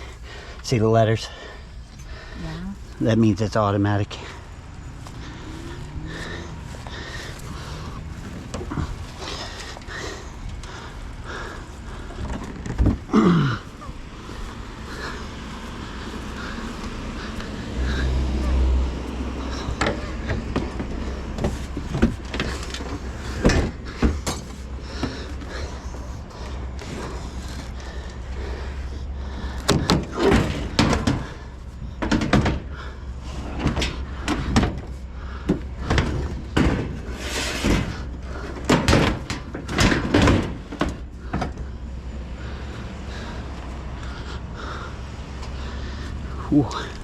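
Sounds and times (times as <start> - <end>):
steady low hum: 0.0 - 47.0
scrap metal clanking: 35.7 - 42.3.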